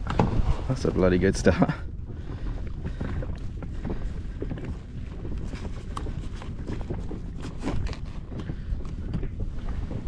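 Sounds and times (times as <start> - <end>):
wind on microphone: 0.0 - 10.0.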